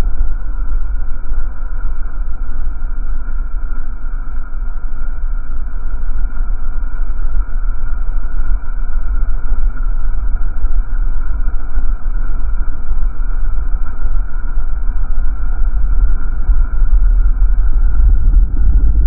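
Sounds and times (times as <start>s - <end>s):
car low rumble: 10.3s - 19.0s.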